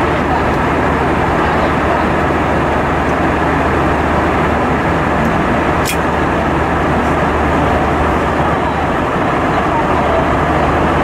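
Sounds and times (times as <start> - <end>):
airliner cabin engine roar: 0.0 - 11.0
constant low hum: 0.0 - 11.0
sharp click: 5.8 - 6.0.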